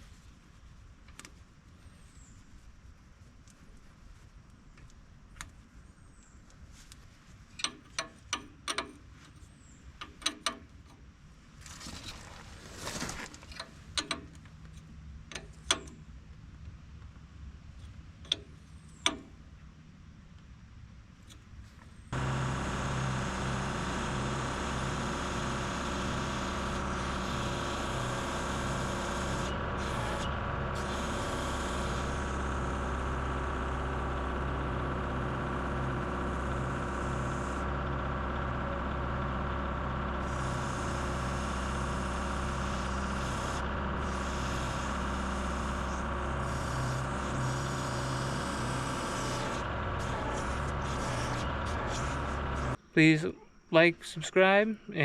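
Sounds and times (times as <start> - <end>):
tractor diesel engine running: 22.1 - 53.2.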